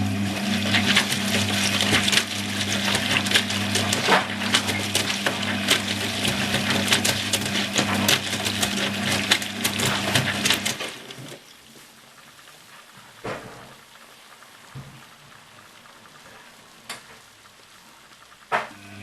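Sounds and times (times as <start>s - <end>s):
washing machine motor hum: 0.0s - 11.5s, 18.6s - 19.0s
laundry clattering and sloshing: 0.2s - 11.5s.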